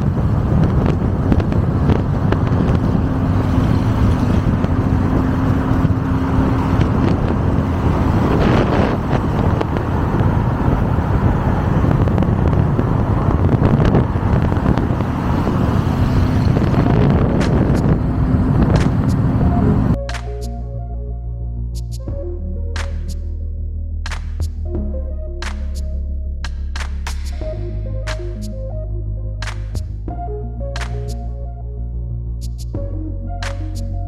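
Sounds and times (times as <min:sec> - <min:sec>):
wind buffeting microphone: 0:00.0 - 0:20.4
car engine low rumble: 0:00.0 - 0:34.0.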